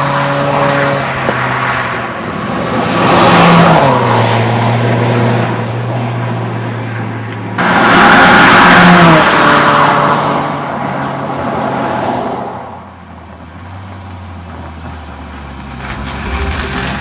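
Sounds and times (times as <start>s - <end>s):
loud car exhaust note: 16.0s - 17.0s.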